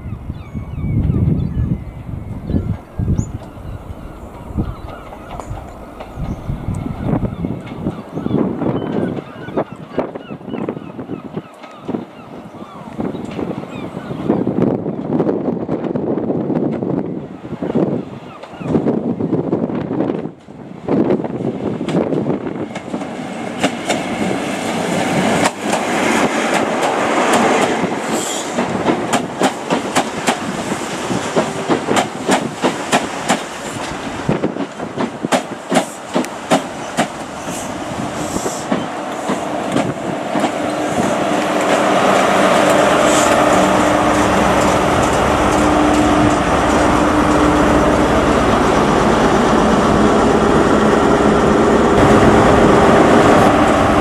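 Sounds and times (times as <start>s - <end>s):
train wheels clicking over rail joints: 21.8s - 47.5s
diesel engine hum: 41.2s - 54.0s.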